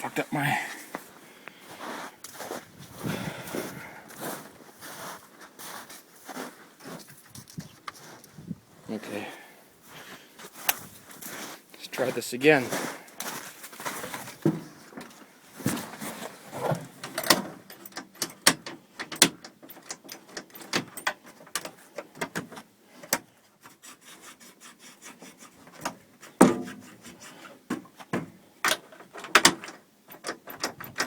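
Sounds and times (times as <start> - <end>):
handling clicks and knocks: 13.2 - 23.3, 25.7 - 31.0.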